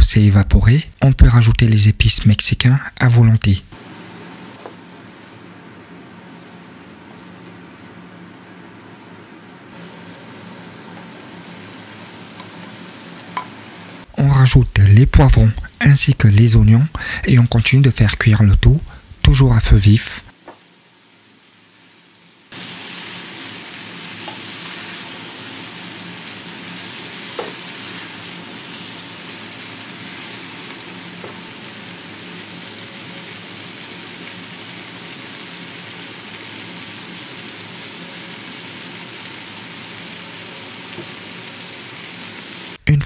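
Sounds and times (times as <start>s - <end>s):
food sizzling in a frying pan: 3.7s - 15.8s, 20.3s - 42.8s
spatula stirring in pan: 22.6s - 31.6s.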